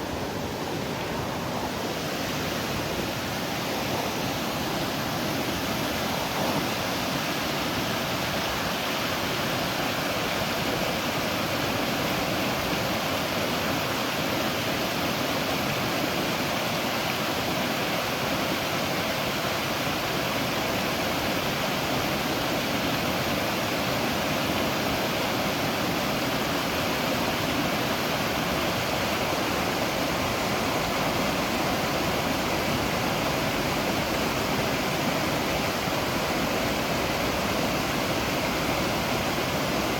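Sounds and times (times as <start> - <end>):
waterfall splashing: 0.0 - 39.9.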